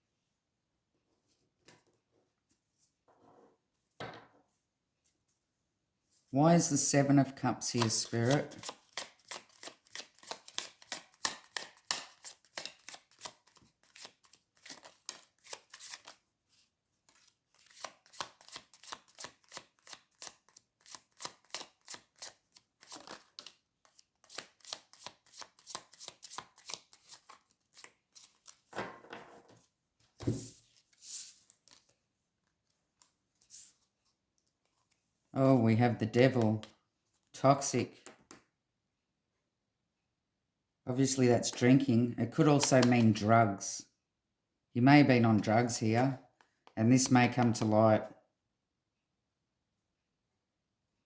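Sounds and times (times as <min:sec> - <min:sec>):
cards being shuffled: 0:07.7 - 0:16.2, 0:17.1 - 0:28.7, 0:30.1 - 0:32.0, 0:42.6 - 0:43.2.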